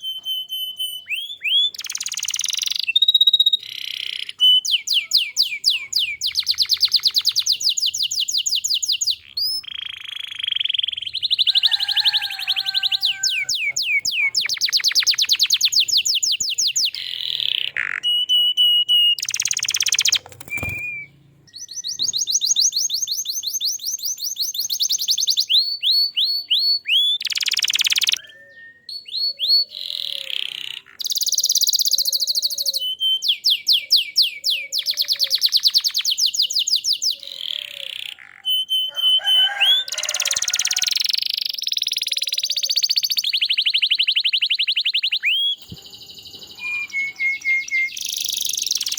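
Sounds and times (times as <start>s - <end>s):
canary singing: 0.0s - 48.9s.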